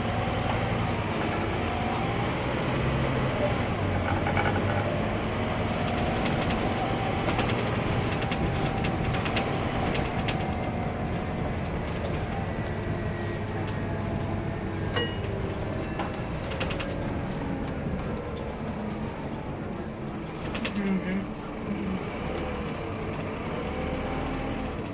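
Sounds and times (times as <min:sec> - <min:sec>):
bus diesel engine running: 0:00.0 - 0:24.9
short bright ding: 0:15.0 - 0:16.2.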